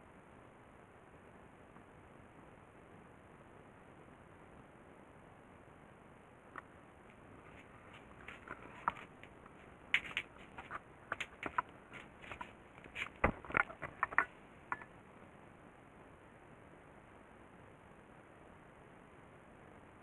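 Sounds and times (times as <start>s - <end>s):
clicks and taps of hard parts: 7.9s - 14.9s.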